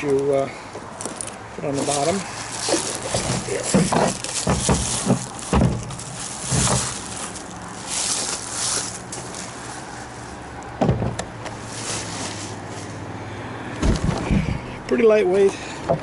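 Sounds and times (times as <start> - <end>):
packing rustling: 1.0 - 10.4
knocks and thumps on plastic: 3.0 - 7.2, 10.8 - 11.3, 13.8 - 14.6.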